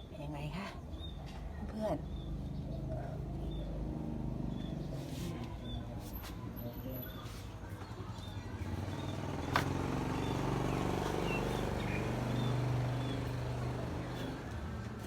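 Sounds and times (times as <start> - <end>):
low engine hum: 7.7 - 15.0.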